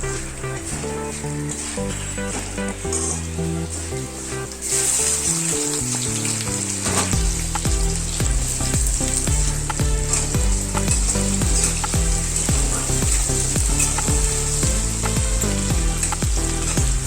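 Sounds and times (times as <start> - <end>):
background music with beat: 0.0 - 17.0
fish sizzling in hot oil: 4.5 - 17.0.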